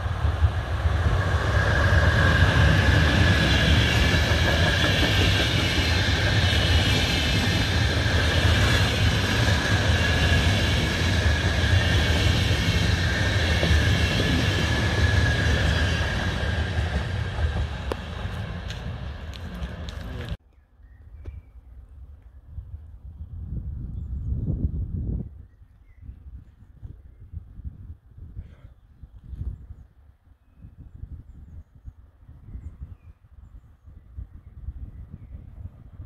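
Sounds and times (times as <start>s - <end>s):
train wheels rumbling on rail: 0.0s - 20.4s.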